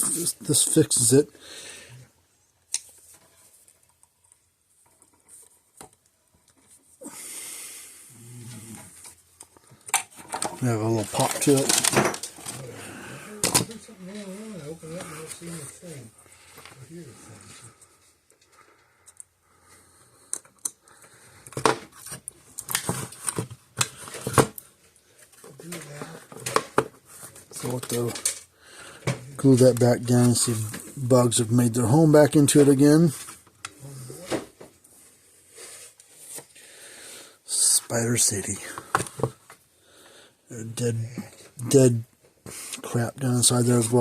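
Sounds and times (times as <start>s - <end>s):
small hard parts clattering: 8.7s - 14.3s, 25.2s - 31.0s.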